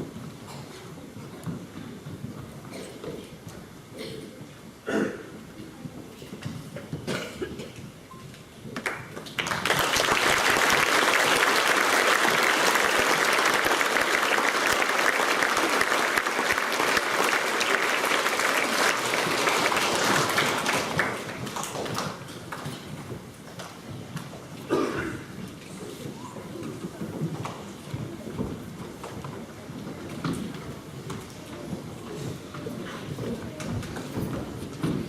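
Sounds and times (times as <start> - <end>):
audience applauding: 8.8 - 22.6.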